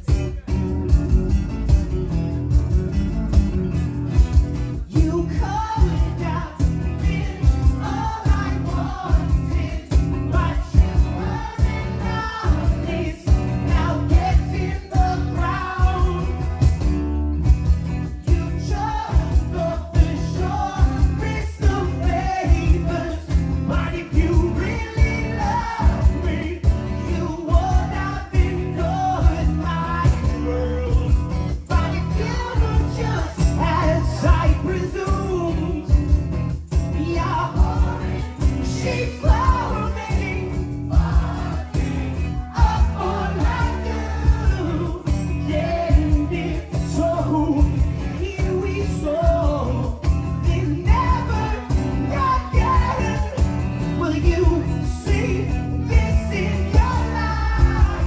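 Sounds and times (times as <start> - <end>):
percussion beat: 0.0 - 58.0
strummed acoustic guitars: 0.0 - 58.0
person singing: 18.3 - 31.1.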